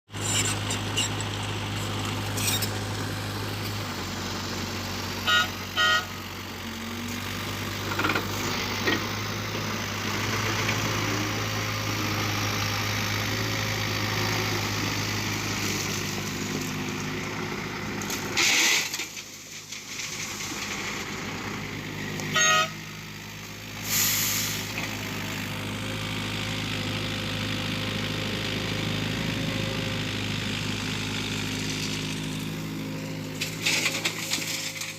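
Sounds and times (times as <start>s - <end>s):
heavy vehicle engine running: 0.1s - 34.9s
short horn beeps: 5.2s - 6.2s, 22.3s - 22.8s
brief hissing bursts: 23.8s - 24.7s.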